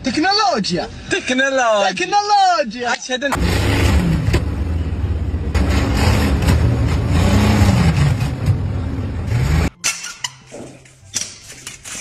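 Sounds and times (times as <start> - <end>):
heavy engine revving: 3.4 - 9.8.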